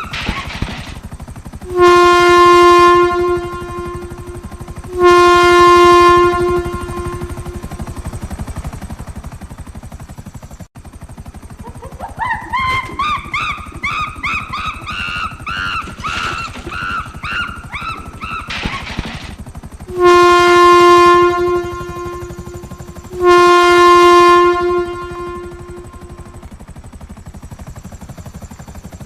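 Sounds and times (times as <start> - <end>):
fast low pulsing: 0.0 - 9.6, 12.6 - 26.5
train horn chord: 1.6 - 8.0, 19.9 - 26.5
warbling tones: 1.6 - 8.8, 19.9 - 26.4.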